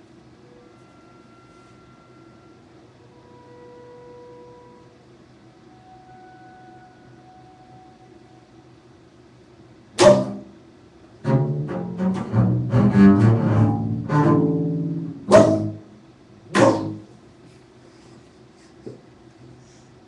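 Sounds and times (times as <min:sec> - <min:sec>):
low bowed string instrument: 0:10.0 - 0:10.5, 0:11.2 - 0:15.9, 0:16.5 - 0:17.1.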